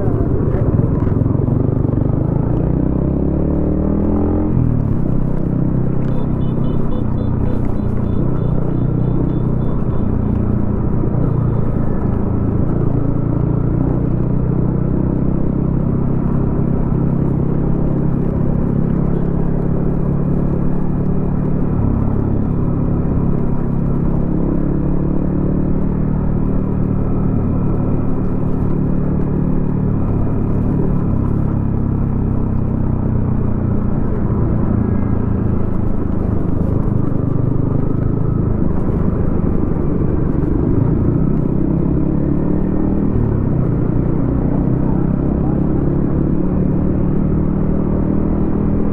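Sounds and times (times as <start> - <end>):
motorcycle exhaust note: 5.7 - 12.0.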